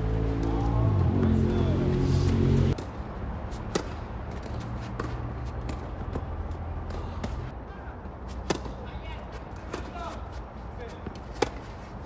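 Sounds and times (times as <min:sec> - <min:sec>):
tennis ball hits and bounces: 0:02.7 - 0:07.5, 0:08.3 - 0:08.8, 0:10.9 - 0:11.9.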